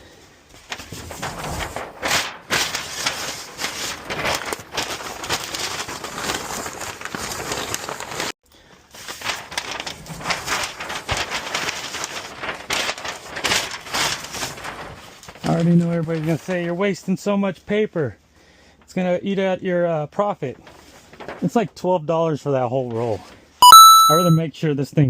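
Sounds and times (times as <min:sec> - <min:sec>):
packing paper crumpling: 0:00.7 - 0:16.6.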